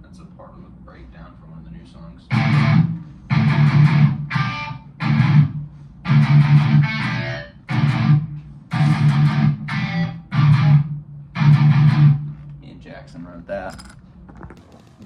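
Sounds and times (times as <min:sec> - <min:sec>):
distorted electric guitar chugging: 0:02.3 - 0:12.4.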